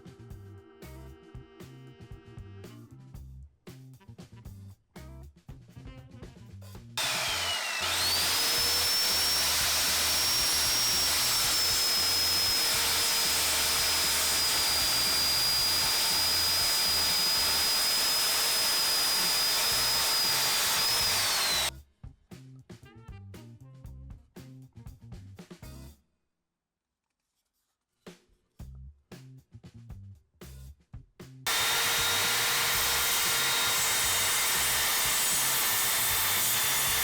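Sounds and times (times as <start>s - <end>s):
circular saw whining: 7.0s - 21.7s, 31.5s - 37.0s.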